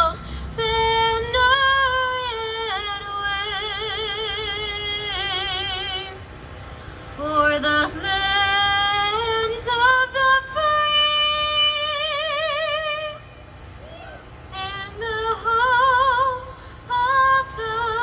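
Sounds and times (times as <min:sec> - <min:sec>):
woman singing with vibrato: 0:00.0 - 0:06.2, 0:07.2 - 0:13.3, 0:14.5 - 0:18.0.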